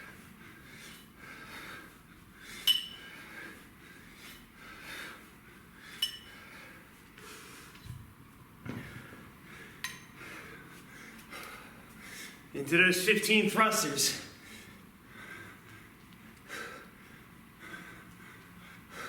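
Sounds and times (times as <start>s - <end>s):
person breathing hard: 0.0s - 7.9s, 8.7s - 12.5s, 14.3s - 19.0s
kettlebell metallic clink: 2.6s - 3.1s, 6.0s - 6.3s, 9.8s - 10.2s.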